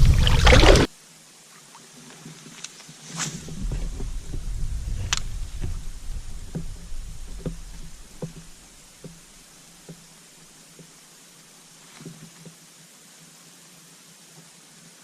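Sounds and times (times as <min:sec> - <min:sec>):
low handling rumble: 0:00.0 - 0:00.9, 0:03.4 - 0:09.3.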